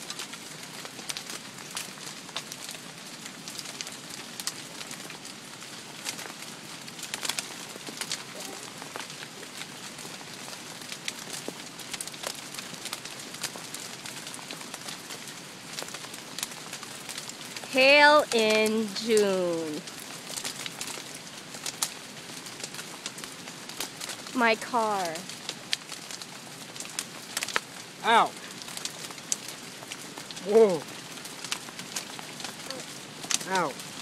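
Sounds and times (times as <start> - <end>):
hailstones clicking on hard surfaces: 0.0 - 18.9, 19.6 - 34.0
rain hissing: 0.0 - 34.0.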